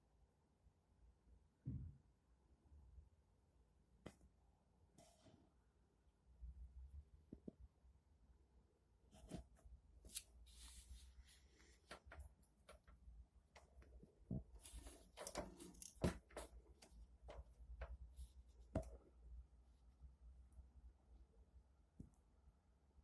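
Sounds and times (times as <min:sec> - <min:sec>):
faint clicks and knocks: 0:11.8 - 0:19.1.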